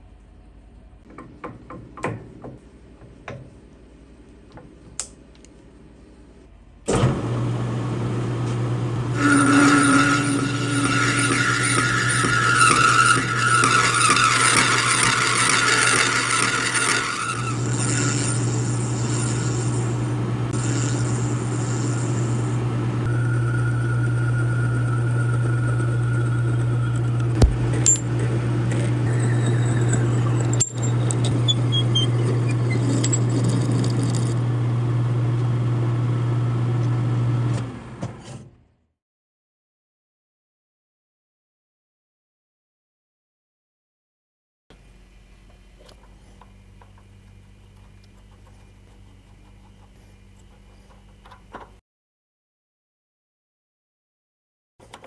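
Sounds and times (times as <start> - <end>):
machine tool motor humming: 7.0 - 36.3
metal cutting whine: 7.0 - 36.6.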